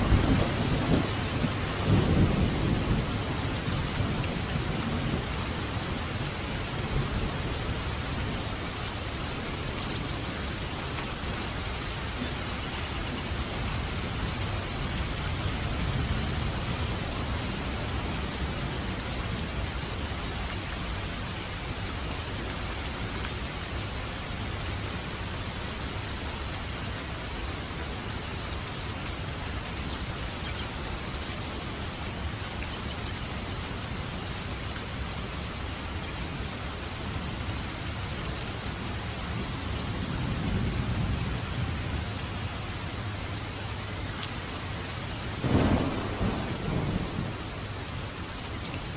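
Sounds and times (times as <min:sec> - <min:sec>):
distant thunder rumble: 0:00.0 - 0:20.2, 0:45.0 - 0:48.9
rain falling on a roof: 0:00.0 - 0:48.9.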